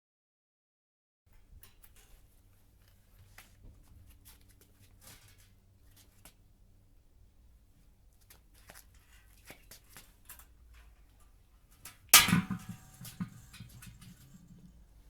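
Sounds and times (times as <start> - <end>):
loud metal bang: 12.2 - 14.7
metal knocks and rattles: 12.2 - 14.9.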